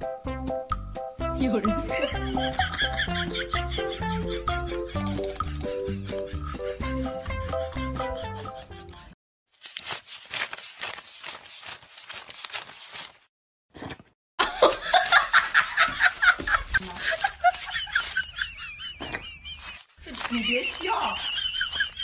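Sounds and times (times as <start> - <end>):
person laughing hard: 1.9 - 5.0, 5.8 - 9.1, 14.4 - 22.0.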